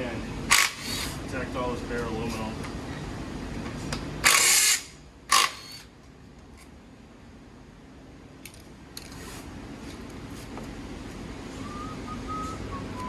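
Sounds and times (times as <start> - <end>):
power tool bursts: 0.5 - 1.2, 4.2 - 5.9.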